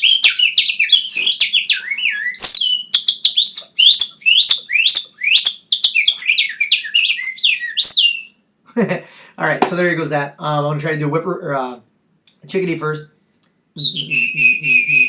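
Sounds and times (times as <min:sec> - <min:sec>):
man whistling bird-like chirps: 0:00.0 - 0:08.4, 0:13.8 - 0:15.0.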